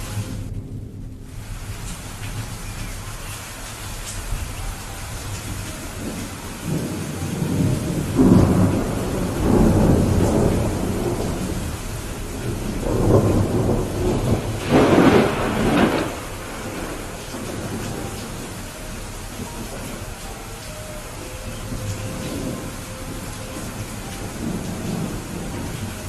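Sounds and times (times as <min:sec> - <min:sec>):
rolling thunder: 0:00.0 - 0:26.0
steady rain: 0:00.0 - 0:26.0
sharp thunder clap: 0:06.0 - 0:18.5.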